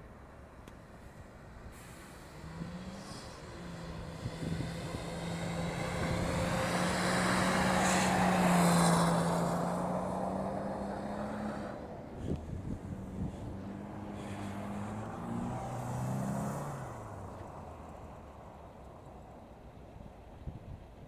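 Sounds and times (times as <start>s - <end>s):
car engine at high revs: 2.2s - 18.5s.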